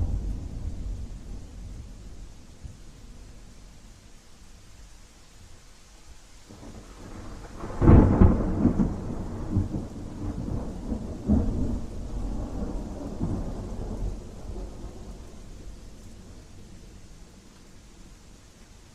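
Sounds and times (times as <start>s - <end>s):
thunder clap and rumble: 0.0s - 2.6s, 6.5s - 15.8s
steady rain: 0.0s - 18.9s.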